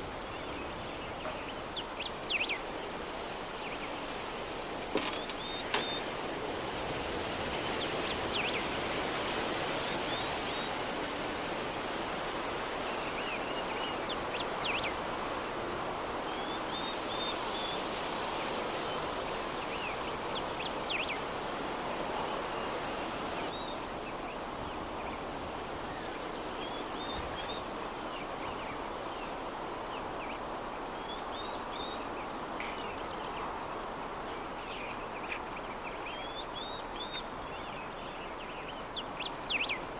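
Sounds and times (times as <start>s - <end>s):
soft breeze hiss: 0.0s - 39.9s.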